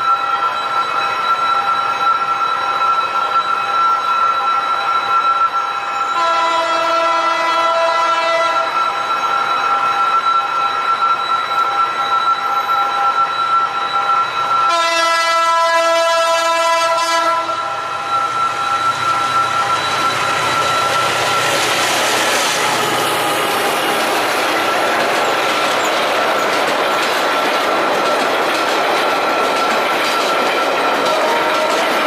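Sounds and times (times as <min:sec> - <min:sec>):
train wheels clacking on rails: 0:00.0 - 0:32.0
locomotive horn blast: 0:06.2 - 0:08.7, 0:14.7 - 0:17.9, 0:31.1 - 0:32.0.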